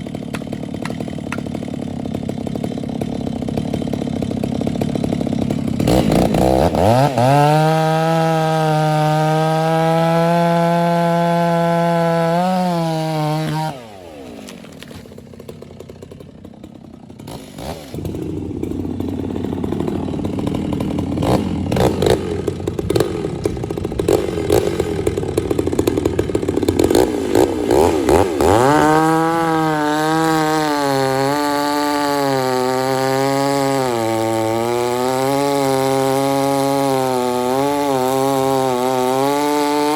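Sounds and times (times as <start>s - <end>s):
chainsaw revving: 0.0s - 39.9s
crackling and knocking: 0.2s - 1.8s.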